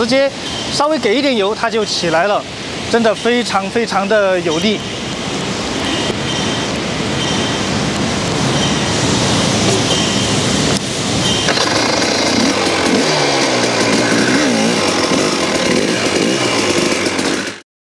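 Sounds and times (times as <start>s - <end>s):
two-stroke motorcycle engine revving: 11.4s - 17.6s.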